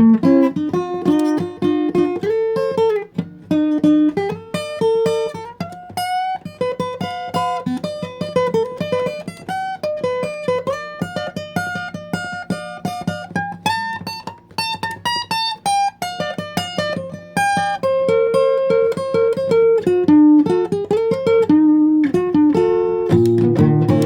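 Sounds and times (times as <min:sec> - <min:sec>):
acoustic guitar plucked notes: 0:00.0 - 0:24.0.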